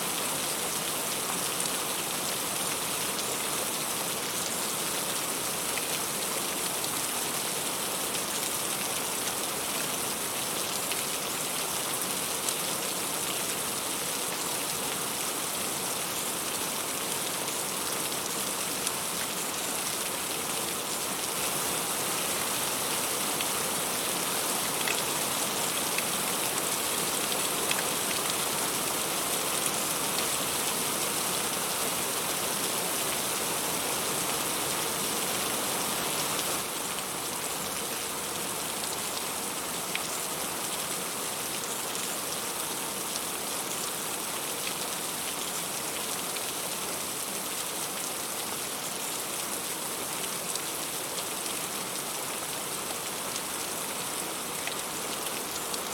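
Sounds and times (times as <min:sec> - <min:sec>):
heavy rain on leaves: 0:00.0 - 0:55.9.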